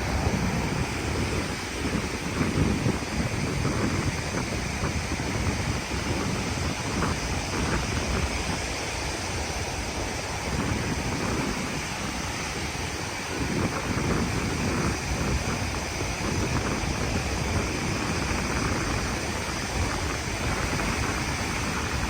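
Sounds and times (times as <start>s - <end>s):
sea waves washing: 0.0s - 22.0s
wind buffeting microphone: 0.0s - 22.0s.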